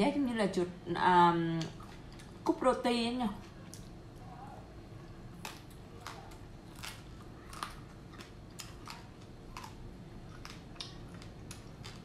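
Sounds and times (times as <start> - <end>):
crunchy chewing: 3.4 - 12.0.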